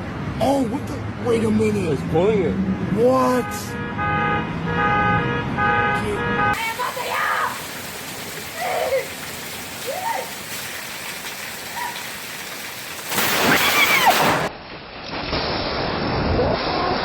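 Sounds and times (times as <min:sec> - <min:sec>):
heavy rain: 0:06.6 - 0:14.5.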